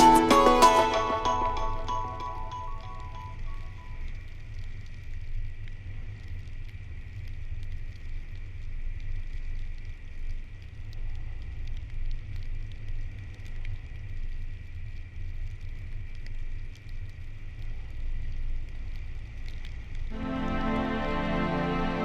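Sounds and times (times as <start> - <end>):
faint ticks: 2.5 - 20.2.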